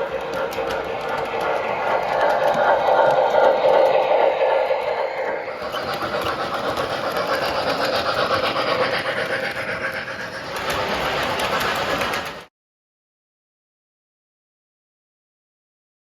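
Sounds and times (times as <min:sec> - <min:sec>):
model train motor hum: 0:00.0 - 0:12.5
model train wheels clattering: 0:00.0 - 0:12.5.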